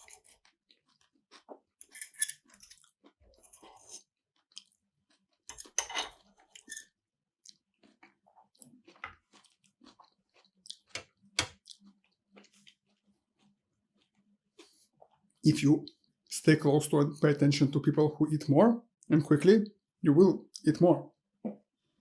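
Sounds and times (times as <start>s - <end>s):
chewing with wet mouth clicks: 7.4s - 14.8s.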